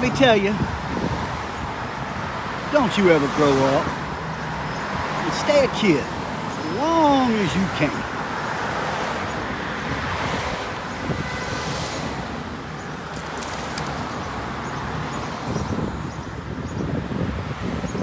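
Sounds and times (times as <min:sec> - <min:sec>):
wind on microphone: 0:00.0 - 0:02.7, 0:09.2 - 0:18.0
road traffic passing: 0:00.0 - 0:18.0
brief clicks: 0:13.1 - 0:14.0.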